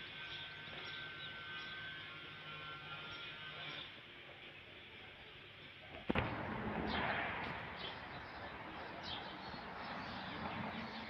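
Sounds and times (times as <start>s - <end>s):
sharp knock: 6.1s - 8.0s.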